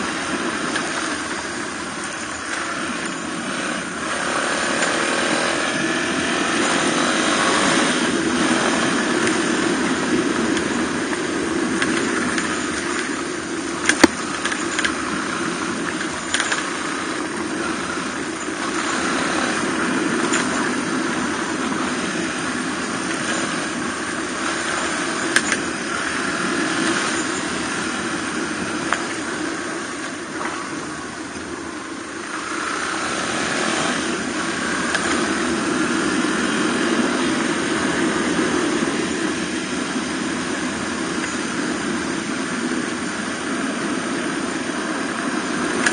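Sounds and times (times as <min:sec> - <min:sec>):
motorcycle engine running: 0:00.0 - 0:45.9
sharp clicks: 0:10.5 - 0:13.2, 0:13.8 - 0:15.0, 0:15.9 - 0:16.8, 0:24.5 - 0:25.7.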